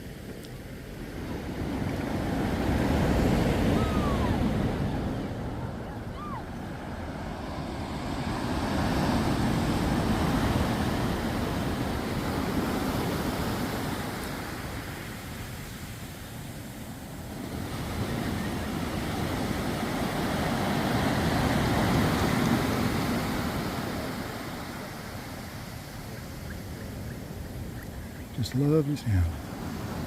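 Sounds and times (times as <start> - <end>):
waves breaking on a beach: 0.0 - 30.0.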